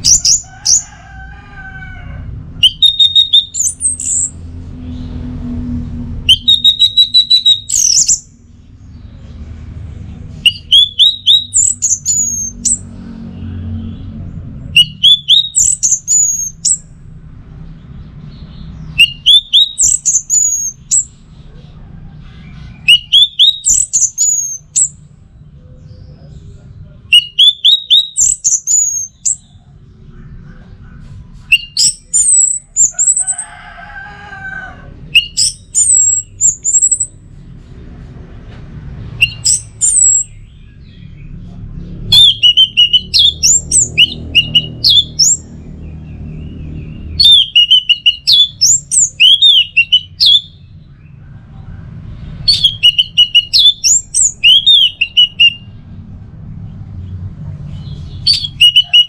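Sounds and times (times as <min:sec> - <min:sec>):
thrush singing whistled notes: 0:00.0 - 0:00.8, 0:02.6 - 0:04.5, 0:06.2 - 0:08.4, 0:10.4 - 0:12.8, 0:14.7 - 0:16.9, 0:18.8 - 0:21.2, 0:22.8 - 0:25.0, 0:27.1 - 0:29.5, 0:31.5 - 0:33.3, 0:35.1 - 0:37.2, 0:39.2 - 0:41.0, 0:42.1 - 0:45.5, 0:46.6 - 0:50.7, 0:52.4 - 0:55.8, 0:58.2 - 0:59.0
lower bird call: 0:00.0 - 0:01.0, 0:02.6 - 0:05.1, 0:06.3 - 0:08.3, 0:14.8 - 0:16.9, 0:18.9 - 0:25.0, 0:27.1 - 0:29.6.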